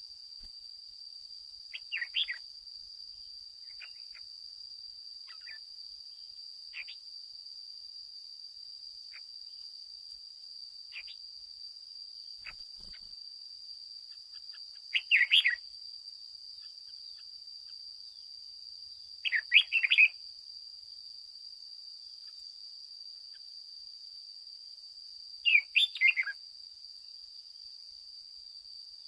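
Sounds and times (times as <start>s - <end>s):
bird singing warbled phrases: 1.7s - 2.4s, 3.7s - 4.2s, 5.3s - 5.6s, 6.7s - 7.0s, 14.3s - 15.6s, 19.2s - 20.2s, 25.4s - 26.4s.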